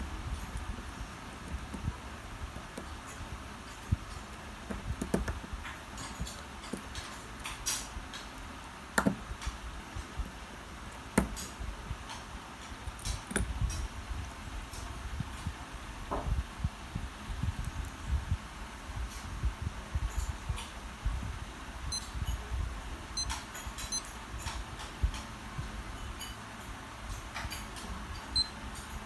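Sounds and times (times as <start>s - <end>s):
metal tools clicking and tapping: 2.6s - 8.4s.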